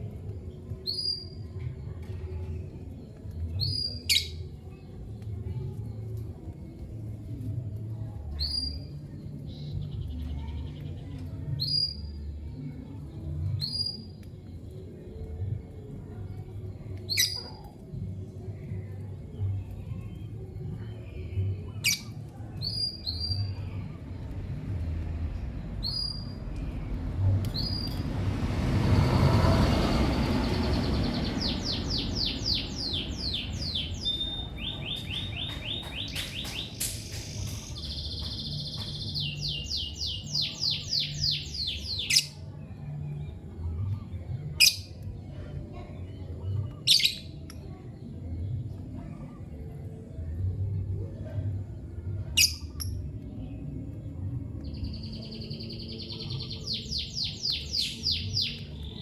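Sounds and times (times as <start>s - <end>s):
lovebirds chirping: 29.6s - 42.4s.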